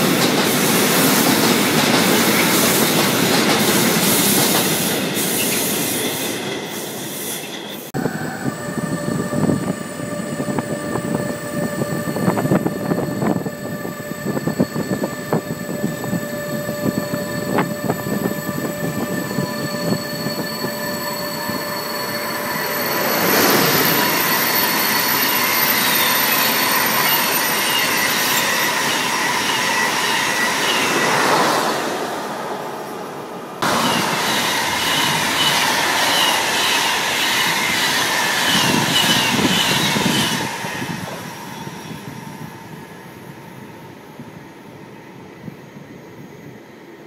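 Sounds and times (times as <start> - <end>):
electric trains passing: 0.0 - 47.0
wheel squeals: 10.3 - 31.5.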